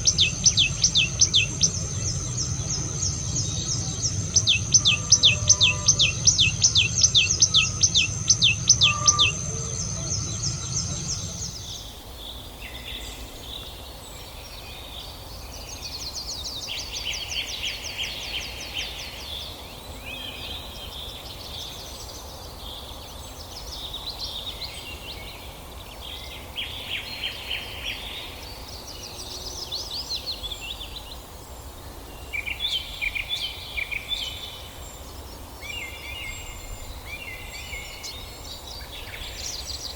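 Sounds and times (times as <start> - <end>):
songbirds singing and chirping: 0.0 - 11.7
low rumble: 0.0 - 11.8
steady background hiss: 0.0 - 11.8.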